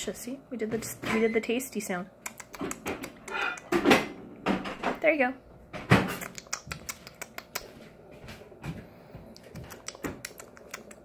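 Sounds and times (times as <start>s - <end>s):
parakeet beak clicking: 2.2s - 3.8s, 6.1s - 7.8s, 9.4s - 11.0s.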